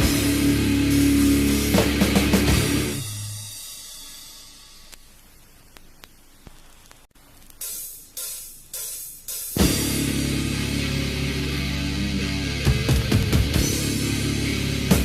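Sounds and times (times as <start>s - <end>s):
metal band with distorted guitars: 0.0s - 4.1s, 9.5s - 15.0s.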